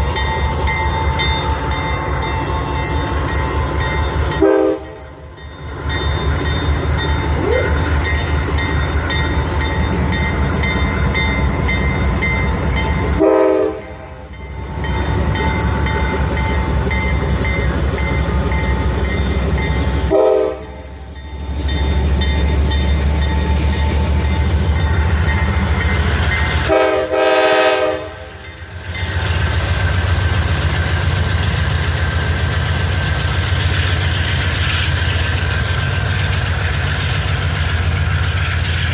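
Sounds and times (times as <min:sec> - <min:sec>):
diesel locomotive engine droning: 0:00.0 - 0:38.9
locomotive air horn blasts: 0:04.4 - 0:05.0, 0:13.2 - 0:14.1, 0:20.1 - 0:20.8, 0:26.6 - 0:28.4.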